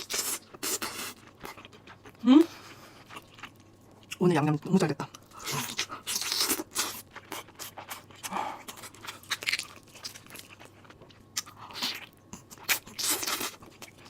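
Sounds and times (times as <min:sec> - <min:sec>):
person chewing crunchy food: 0:00.0 - 0:04.2, 0:05.1 - 0:14.0.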